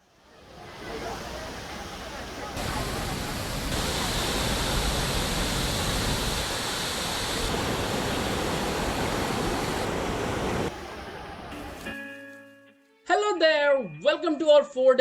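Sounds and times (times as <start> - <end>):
waterfall rushing: 0.2 - 11.8.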